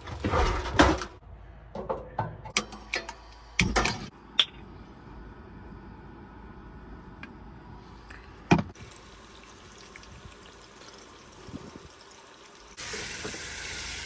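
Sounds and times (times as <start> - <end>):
food sizzling in frying pan: 8.8 - 14.0.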